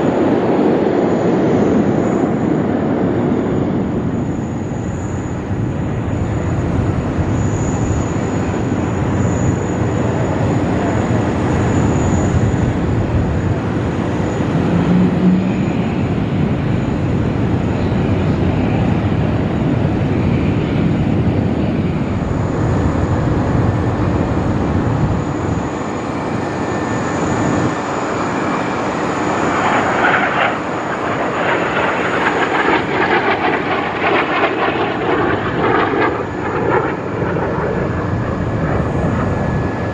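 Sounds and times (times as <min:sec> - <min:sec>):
jet engine rumble and hiss: 0:00.0 - 0:39.9.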